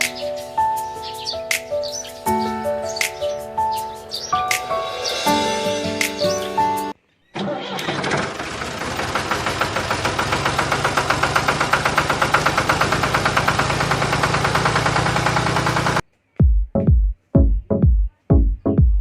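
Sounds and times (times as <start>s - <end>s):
miniature diesel engine running: 7.4s - 16.0s.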